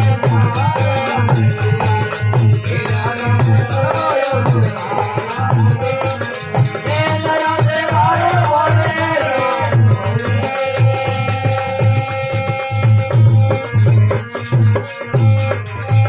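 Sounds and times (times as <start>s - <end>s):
person singing: 0.0s - 12.6s.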